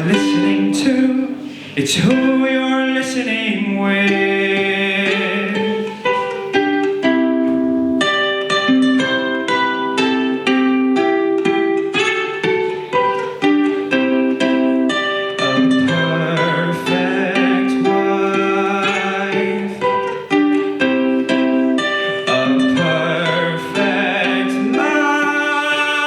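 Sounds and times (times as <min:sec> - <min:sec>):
plucked string instrument melody: 0:00.0 - 0:26.0.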